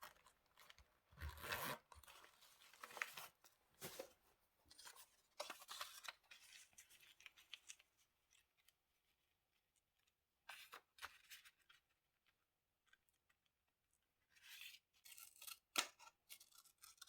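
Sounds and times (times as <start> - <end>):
scissors cutting paper: 15.0 - 17.0.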